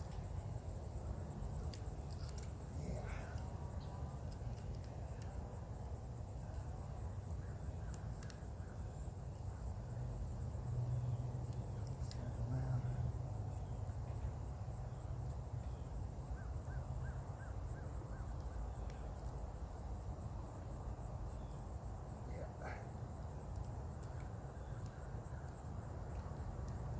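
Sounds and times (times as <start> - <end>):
insects trilling: 0.0 - 26.9
faint clicks: 1.4 - 5.4, 7.3 - 8.8, 11.1 - 12.9, 23.5 - 26.9.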